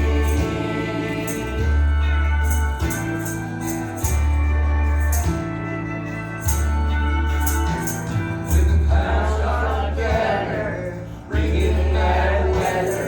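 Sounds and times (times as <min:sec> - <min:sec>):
person singing: 0:00.0 - 0:03.0, 0:08.5 - 0:13.0
long held bass notes: 0:00.0 - 0:13.0.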